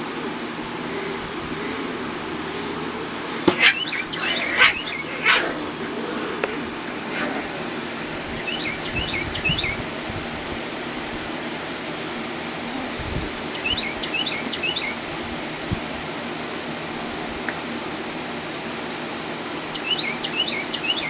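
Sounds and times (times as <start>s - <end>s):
outdoor background noise: 0.0s - 21.0s
songbird chirping: 0.8s - 9.9s, 13.4s - 15.0s, 19.6s - 21.0s.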